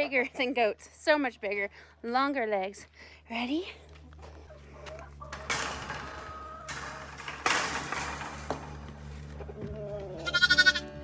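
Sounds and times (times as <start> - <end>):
rustling and scuffing: 3.9 - 10.2
faint background music: 9.0 - 11.0.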